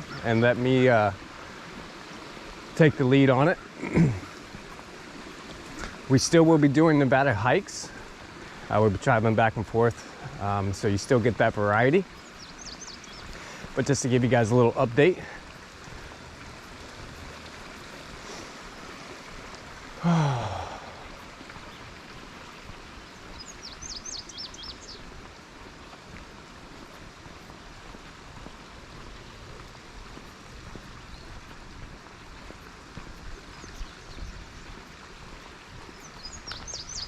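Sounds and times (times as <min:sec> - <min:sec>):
outdoor background hiss: 0:00.0 - 0:37.0
person sighing: 0:03.8 - 0:04.3, 0:20.0 - 0:21.2
bird chirping: 0:11.8 - 0:14.4, 0:23.0 - 0:25.0, 0:35.8 - 0:37.0.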